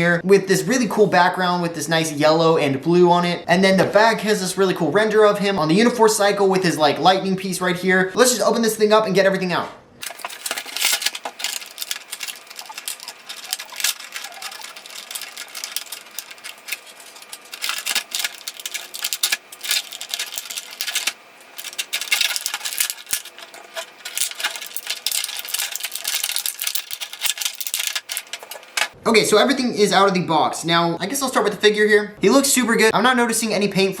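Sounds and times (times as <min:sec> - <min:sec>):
packaging crinkling and rustling: 0:10.0 - 0:29.0.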